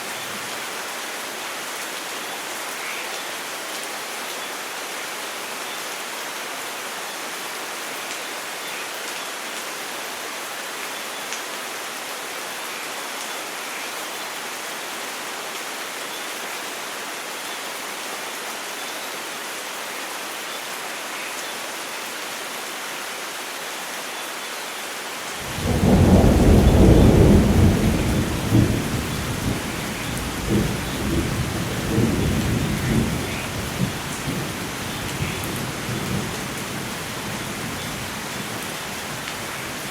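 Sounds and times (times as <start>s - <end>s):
heavy rain hissing: 25.2s - 39.9s
thunder clap and rumble: 25.4s - 34.5s.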